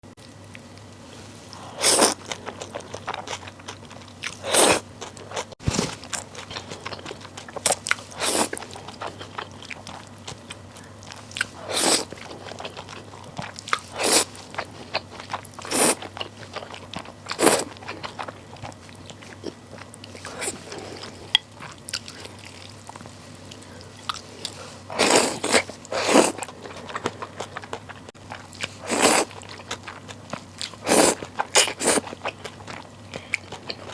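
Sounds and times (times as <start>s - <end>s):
person chewing noodles: 0.4s - 33.9s
crunchy bite: 24.0s - 33.9s.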